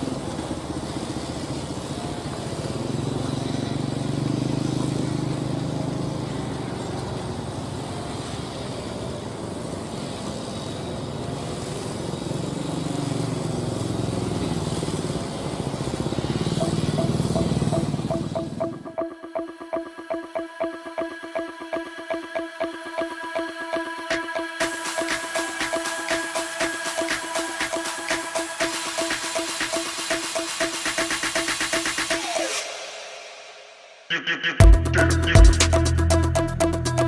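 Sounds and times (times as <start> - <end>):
diesel engine running under load: 0.0 - 18.8.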